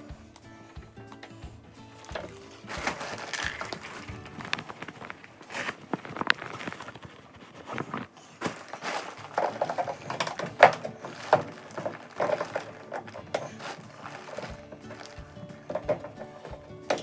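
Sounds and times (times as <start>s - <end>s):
hands knocking and rubbing on parts: 0.8s - 17.0s.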